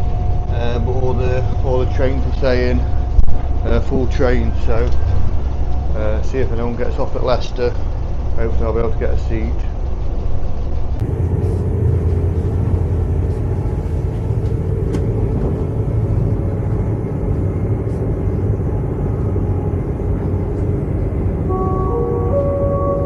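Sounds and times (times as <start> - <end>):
train rumbling: 0.0 - 23.0
electronic chime: 21.5 - 23.0.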